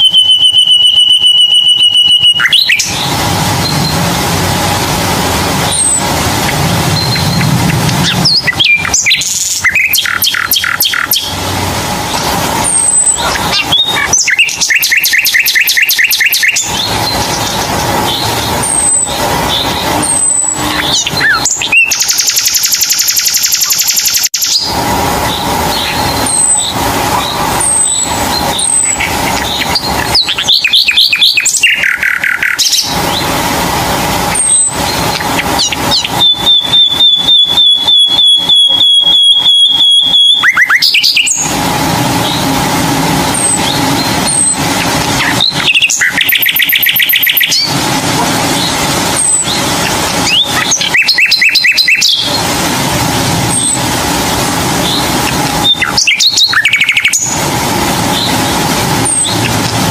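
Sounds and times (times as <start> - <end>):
birds chirping and trilling: 0.0 - 33.5, 34.2 - 59.9.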